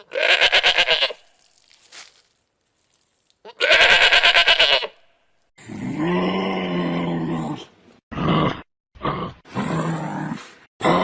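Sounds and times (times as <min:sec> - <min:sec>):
goat bleating: 0:00.0 - 0:01.5, 0:03.4 - 0:05.1.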